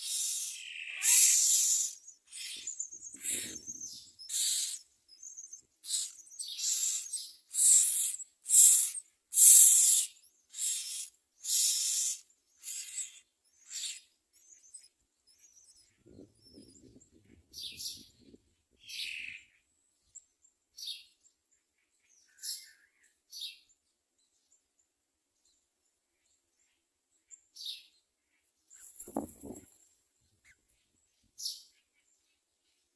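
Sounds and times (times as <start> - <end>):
nestlings begging calls: 0.0 - 15.5.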